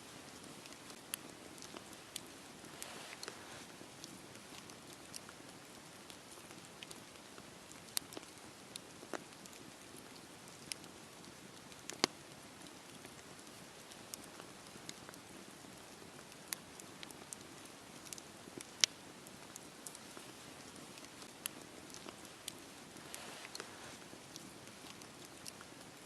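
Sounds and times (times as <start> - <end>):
wood crackling and popping: 0.0 - 26.0
flames hissing: 0.5 - 4.1, 20.1 - 25.4.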